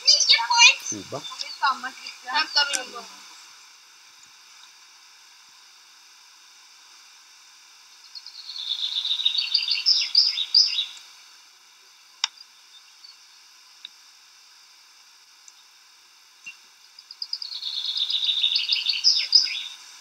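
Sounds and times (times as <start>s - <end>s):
songbird singing: 0.0s - 3.2s, 7.9s - 11.1s, 16.4s - 19.9s
steady hiss: 0.0s - 20.0s.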